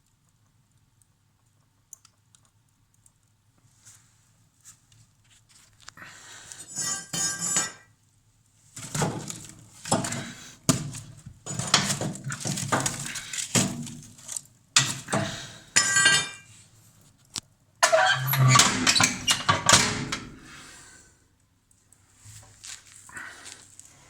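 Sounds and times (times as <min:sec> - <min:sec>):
clinks and knocks: 0:06.7 - 0:07.9, 0:08.8 - 0:16.5, 0:17.8 - 0:20.5.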